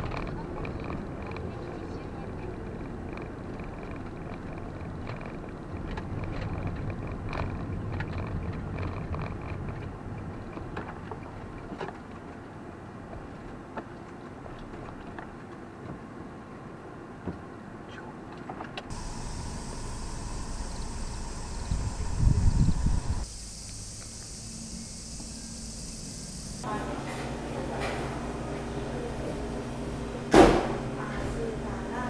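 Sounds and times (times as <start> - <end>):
vehicle rumble: 0.0 - 11.8, 18.8 - 32.0
steady high hiss: 18.9 - 32.0.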